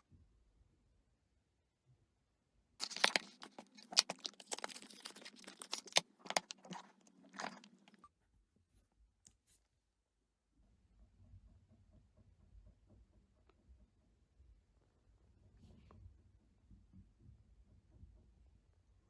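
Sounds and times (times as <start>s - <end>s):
crunching and crackling: 2.8s - 8.1s.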